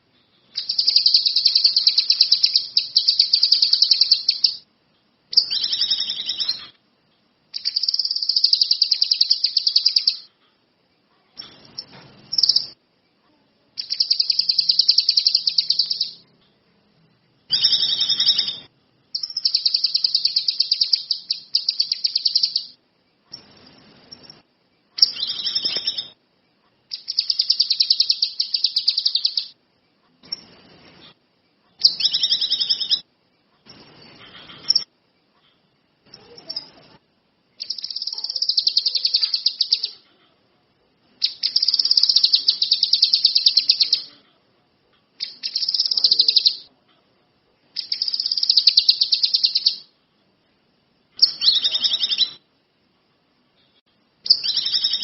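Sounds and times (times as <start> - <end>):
songbird trilling: 0.6 - 4.6, 5.3 - 6.7, 7.6 - 10.3, 11.8 - 12.8, 13.8 - 16.2, 17.5 - 22.8, 25.0 - 26.2, 26.9 - 29.6, 31.8 - 33.0, 37.6 - 40.0, 41.2 - 44.1, 45.2 - 46.7, 47.8 - 49.9, 51.2 - 52.4, 54.3 - 55.0.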